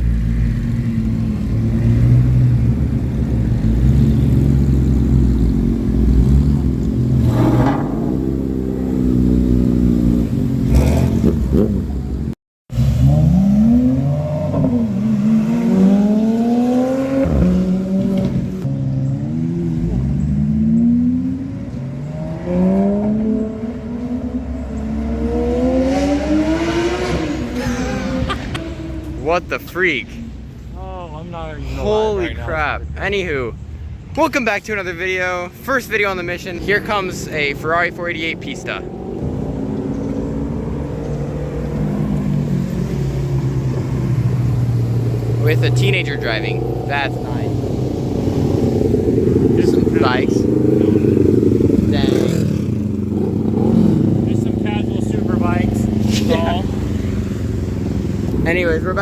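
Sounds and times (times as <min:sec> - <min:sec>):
sports car engine approaching: 0:00.0 - 0:59.0
car engine accelerating hard: 0:01.0 - 0:11.9.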